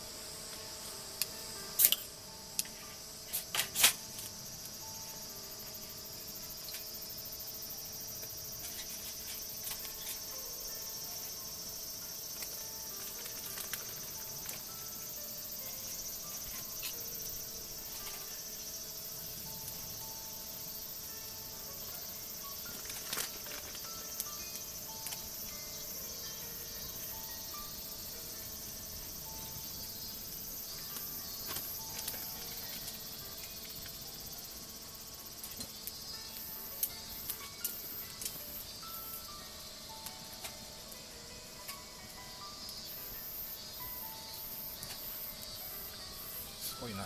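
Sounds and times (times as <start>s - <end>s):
insects trilling: 0.0s - 47.0s.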